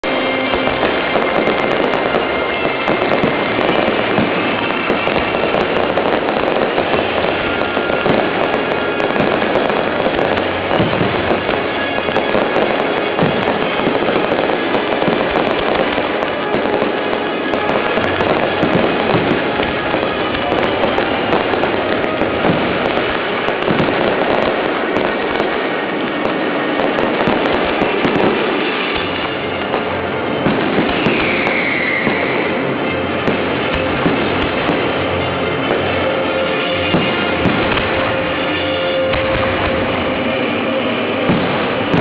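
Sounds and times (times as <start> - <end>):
fireworks crackling and popping: 0.0 - 42.0
music playing: 0.0 - 42.0.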